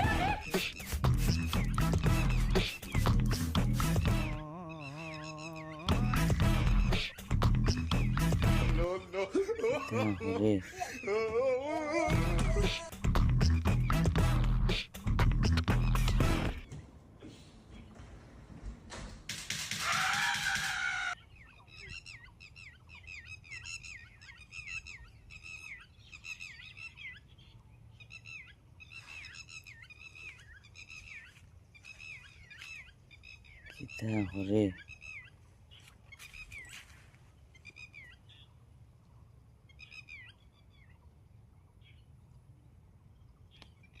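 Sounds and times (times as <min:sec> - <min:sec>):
small birds chirping: 0:00.0 - 0:14.2, 0:20.0 - 0:38.6, 0:39.6 - 0:42.2, 0:43.1 - 0:44.0
soft bird chirps: 0:21.1 - 0:38.6.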